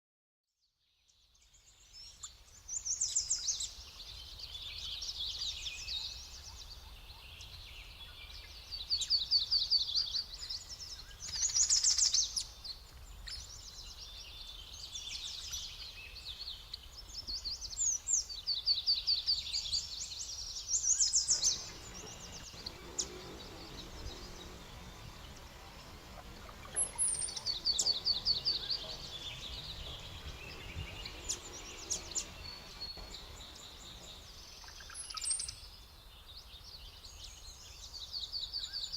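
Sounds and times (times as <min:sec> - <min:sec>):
songbirds chirping: 0:00.6 - 0:38.9
low background rumble: 0:21.0 - 0:34.6.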